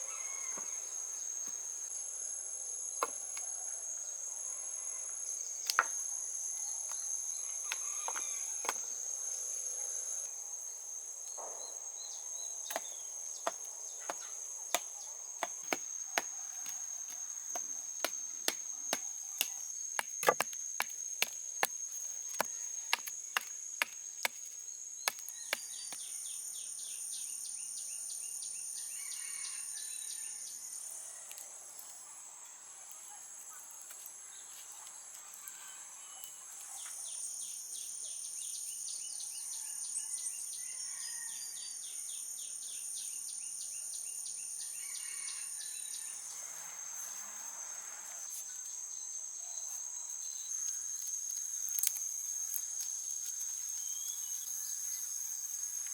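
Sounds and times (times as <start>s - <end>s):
insect chorus trilling: 0.0s - 55.9s
sharp knocks: 14.8s - 21.4s.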